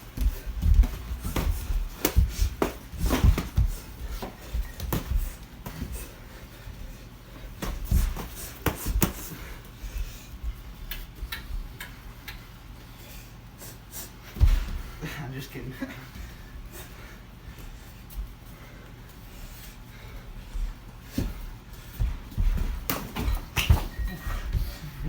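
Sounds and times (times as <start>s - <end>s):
feet shuffling on hard floor: 0.0s - 11.7s, 16.2s - 25.0s
boxing gloves slapping: 0.1s - 5.9s, 7.6s - 9.4s, 22.0s - 24.2s.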